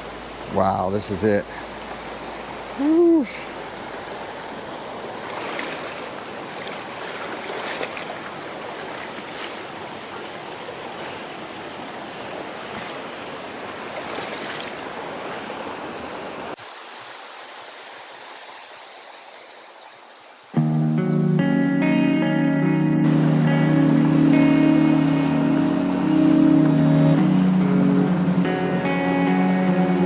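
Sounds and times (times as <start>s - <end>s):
waterfall rushing: 23.0s - 30.0s.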